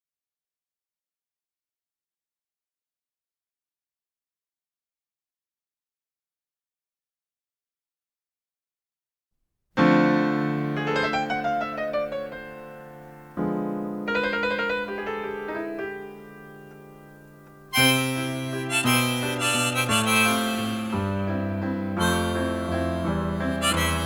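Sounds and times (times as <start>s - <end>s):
solo piano runs: 9.8s - 24.0s
harmonica with accompaniment: 17.7s - 24.0s.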